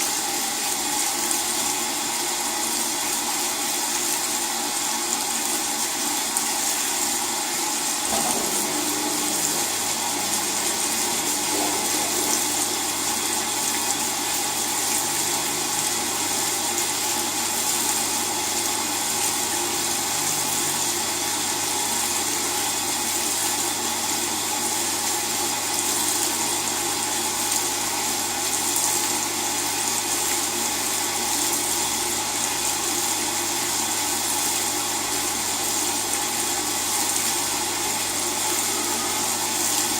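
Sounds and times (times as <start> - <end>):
water pouring into washing machine: 0.0 - 39.9
low steady hum: 8.1 - 16.6.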